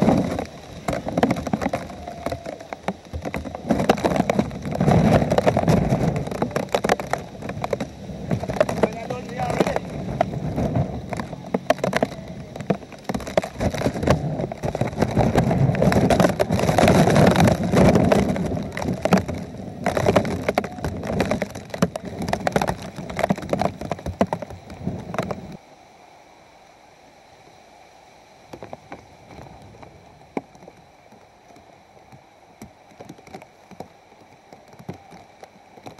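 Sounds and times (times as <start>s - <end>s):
wind and rain battering microphone: 0.0s - 35.9s.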